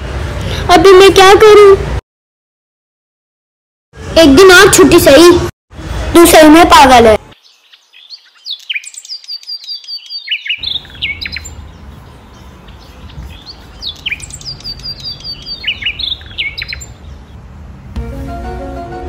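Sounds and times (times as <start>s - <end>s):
small birds chirping: 7.3s - 17.4s.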